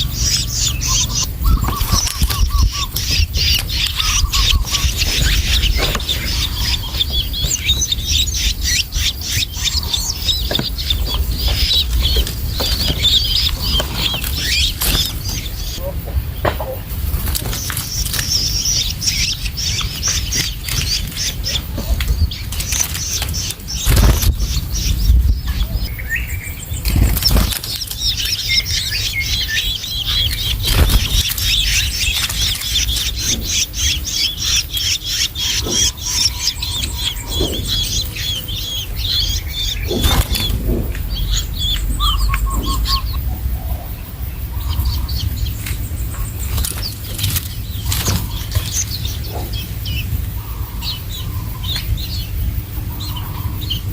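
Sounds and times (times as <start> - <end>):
young bird chattering calls: 0.0 - 53.9
dull thumps: 1.4 - 16.9.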